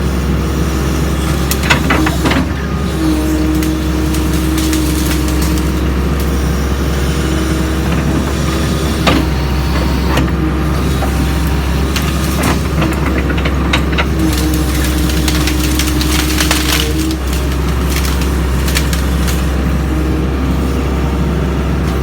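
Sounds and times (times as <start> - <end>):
excavator diesel engine running: 0.0 - 22.0
sharp knocks and cracks: 3.5 - 6.3, 11.0 - 19.7.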